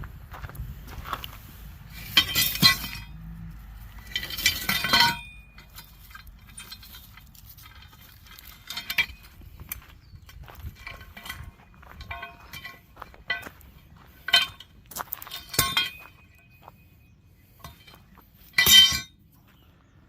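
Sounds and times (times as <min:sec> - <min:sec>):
metal parts clanking and ringing: 0:01.9 - 0:19.3.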